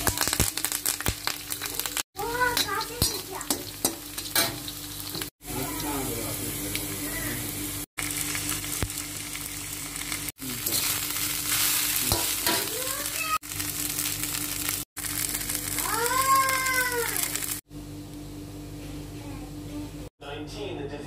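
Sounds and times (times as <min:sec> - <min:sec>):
rice sizzling in hot oil: 0:00.0 - 0:17.6
steel spatula scraping: 0:10.6 - 0:12.8.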